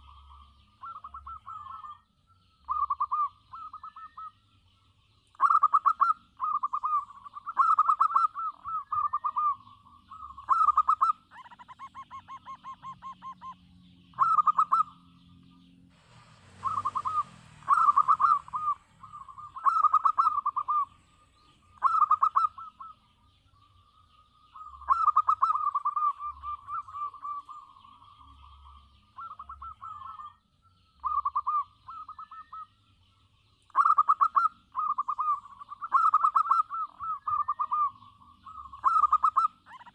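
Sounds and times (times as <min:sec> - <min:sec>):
dove cooing: 0:00.0 - 0:02.0, 0:02.7 - 0:04.4, 0:05.3 - 0:15.1, 0:16.2 - 0:23.1, 0:24.5 - 0:30.4, 0:31.0 - 0:32.8, 0:33.7 - 0:39.9
noisy rustle: 0:15.9 - 0:19.3.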